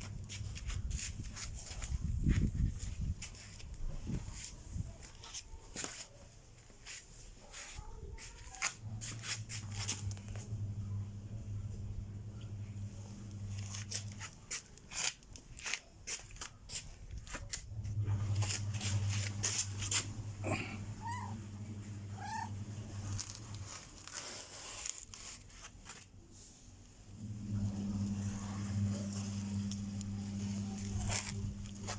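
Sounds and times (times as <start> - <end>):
clicks and rustles: 0.0 - 10.6, 13.2 - 20.3, 22.9 - 27.0
steady low hum: 8.8 - 14.5, 17.1 - 23.8, 27.1 - 31.9
cat meowing: 21.0 - 21.4, 22.1 - 22.6.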